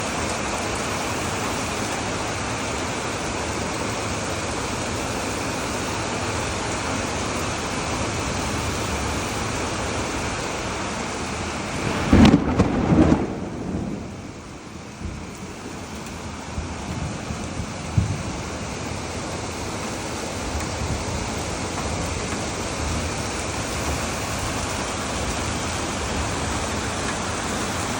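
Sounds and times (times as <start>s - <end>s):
heavy rain hissing: 0.0s - 27.9s
loud low rumble: 11.4s - 15.7s.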